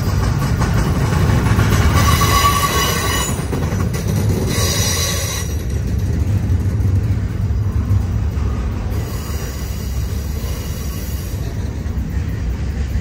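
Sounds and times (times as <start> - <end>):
train rumbling on rails: 0.0 - 13.0
high-pitched wheel squeal: 1.9 - 3.6, 4.5 - 5.6.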